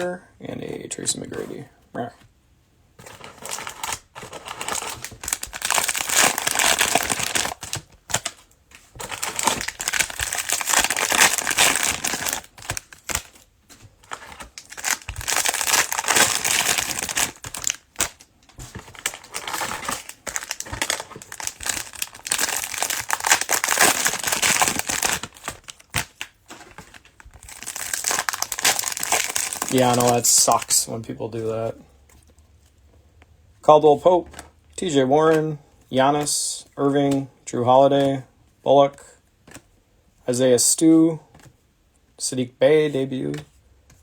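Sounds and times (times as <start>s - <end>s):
cellophane wrappers crinkling: 3.0s - 31.0s.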